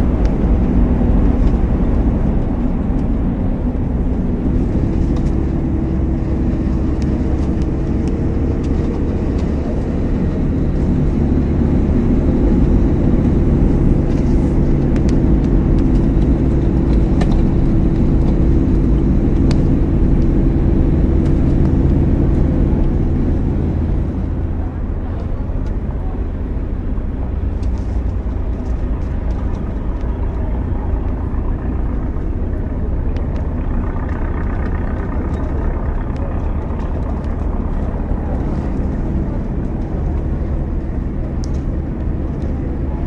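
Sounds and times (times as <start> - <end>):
car engine droning: 0.0 - 43.0.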